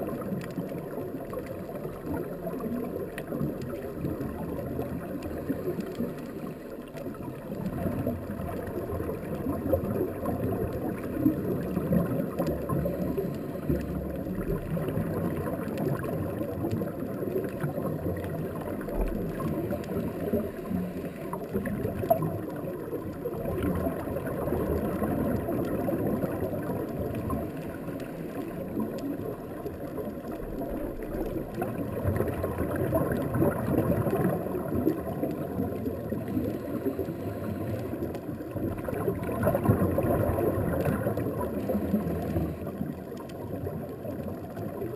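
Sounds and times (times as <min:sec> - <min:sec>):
bubbles gurgling: 0:00.0 - 0:44.9
faint clicks: 0:00.0 - 0:44.9
diver regulator breathing: 0:12.7 - 0:14.1, 0:19.7 - 0:21.7, 0:36.2 - 0:38.2.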